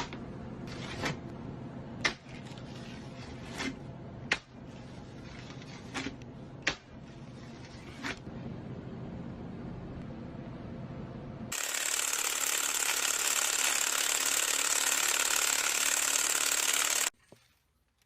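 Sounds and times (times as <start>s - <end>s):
faint steady hum: 0.0s - 11.5s.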